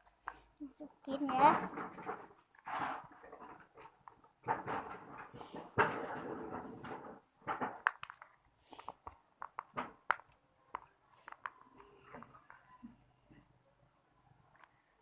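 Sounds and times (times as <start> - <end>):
small clicks and taps: 7.5 - 13.0.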